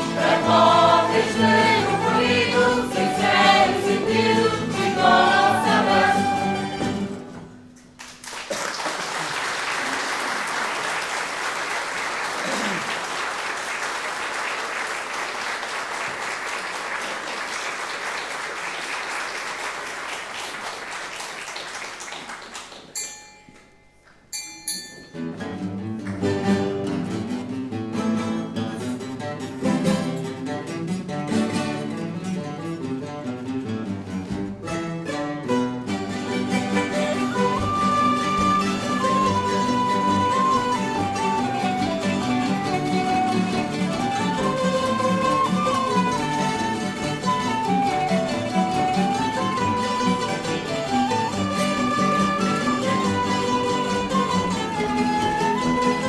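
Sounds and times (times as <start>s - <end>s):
audience applauding: 0.0s - 7.3s, 8.0s - 23.0s, 36.2s - 56.0s
plucked guitar music: 0.0s - 7.8s, 25.1s - 56.0s.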